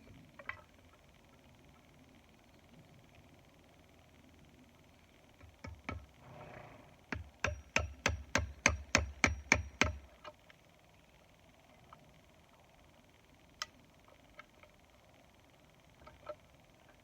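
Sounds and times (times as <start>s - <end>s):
hammer striking a nail: 7.1s - 10.0s.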